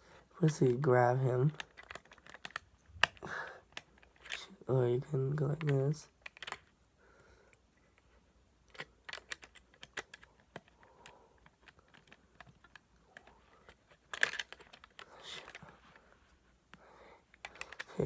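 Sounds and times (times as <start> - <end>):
small plastic clicks and taps: 1.5 - 4.5, 5.6 - 6.7, 8.7 - 16.0, 16.7 - 18.0.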